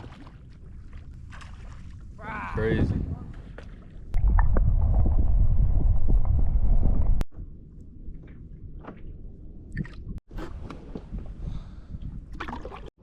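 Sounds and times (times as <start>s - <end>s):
water lapping: 0.0s - 4.2s.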